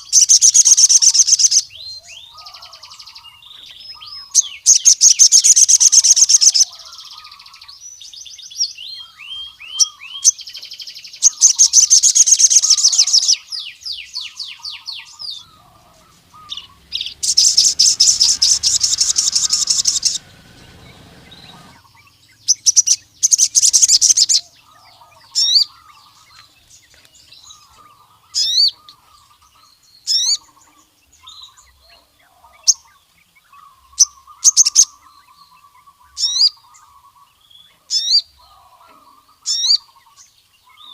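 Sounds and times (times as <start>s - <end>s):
bird singing buzzy trills: 0.0s - 40.9s
sharp rising chirps: 15.1s - 24.2s.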